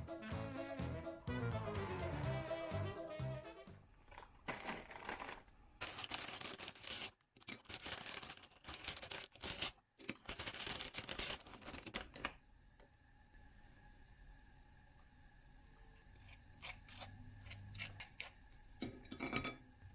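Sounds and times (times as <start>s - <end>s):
rustling and crinkling handling noise: 3.9s - 12.4s.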